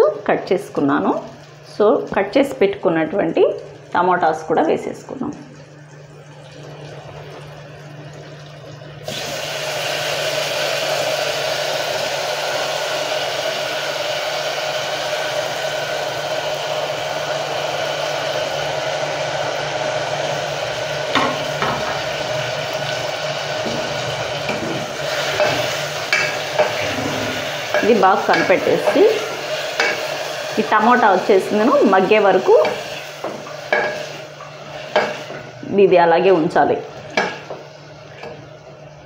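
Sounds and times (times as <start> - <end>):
vegetables sizzling in hot oil: 9.0 - 38.2.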